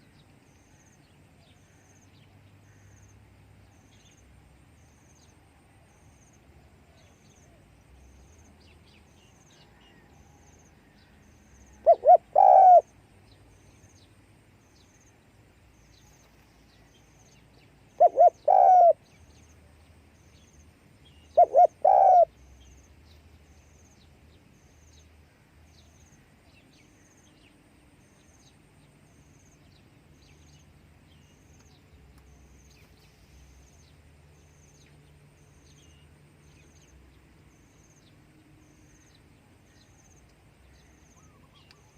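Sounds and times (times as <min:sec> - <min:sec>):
dove cooing: 0:11.8 - 0:12.9, 0:18.0 - 0:19.0, 0:21.3 - 0:22.4.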